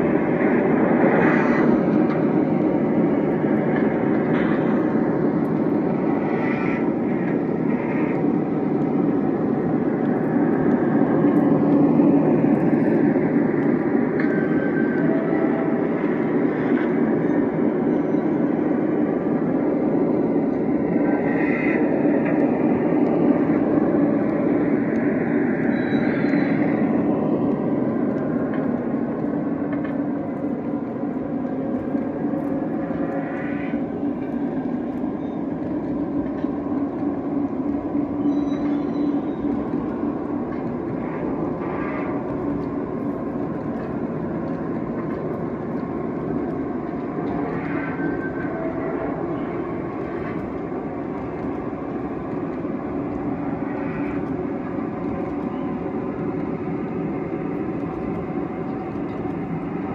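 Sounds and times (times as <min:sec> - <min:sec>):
model train rumbling on track: 0:00.0 - 0:59.9.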